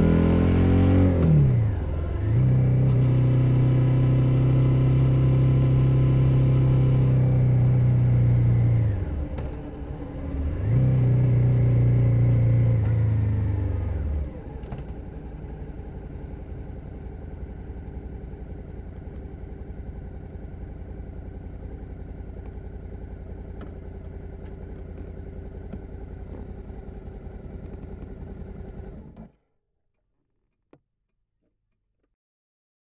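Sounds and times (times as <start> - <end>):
motorcycle engine idling: 14.8 - 29.2.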